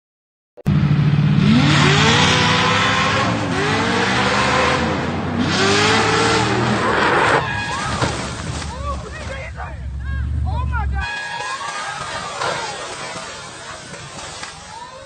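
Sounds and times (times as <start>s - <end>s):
car engine accelerating: 0.7s - 7.6s.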